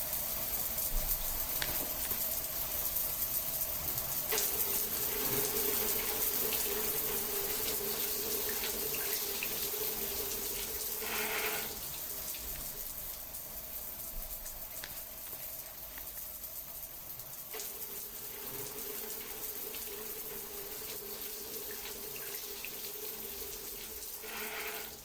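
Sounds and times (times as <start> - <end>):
water dripping: 0.0 - 25.0
water running and trickling: 0.0 - 25.0.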